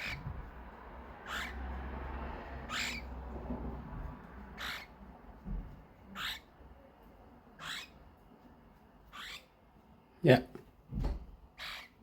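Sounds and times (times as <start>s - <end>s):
cockatiel screeching: 0.0s - 0.4s, 1.1s - 1.8s, 2.5s - 3.2s, 4.5s - 5.0s, 6.1s - 6.6s, 7.6s - 8.0s, 9.1s - 9.6s, 11.5s - 12.0s.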